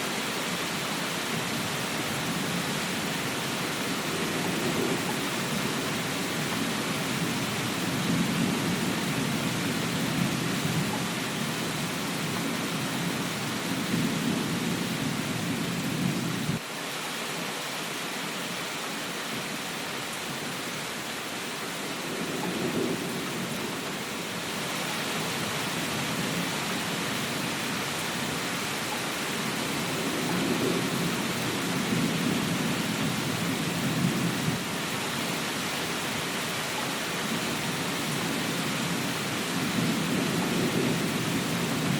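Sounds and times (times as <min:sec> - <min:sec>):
heavy rain: 0:00.0 - 0:41.9
rolling thunder: 0:03.8 - 0:16.6, 0:22.0 - 0:23.9, 0:29.5 - 0:34.7, 0:39.5 - 0:41.9.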